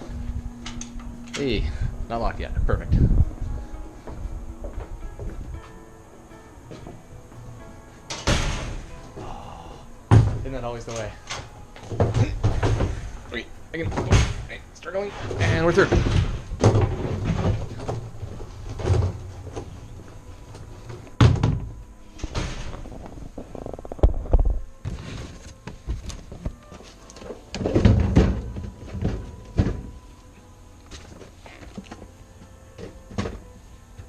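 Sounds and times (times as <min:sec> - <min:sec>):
knocks and thuds of gear: 0:10.1 - 0:13.1, 0:15.3 - 0:19.7.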